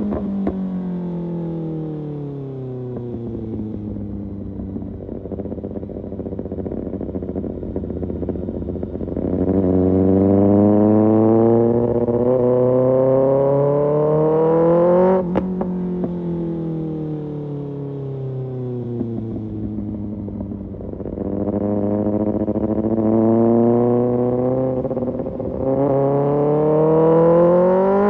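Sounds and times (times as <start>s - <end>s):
motorcycle engine revving: 0.0s - 17.1s, 18.4s - 28.0s.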